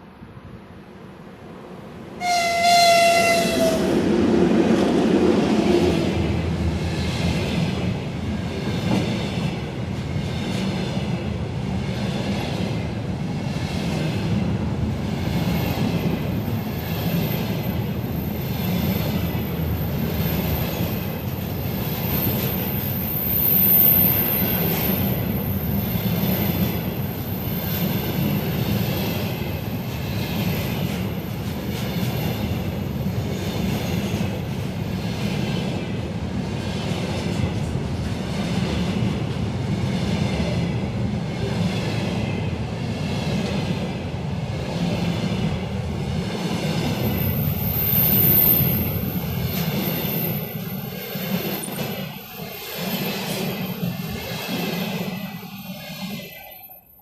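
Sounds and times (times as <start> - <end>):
high wheel squeal: 47.1 - 50.8.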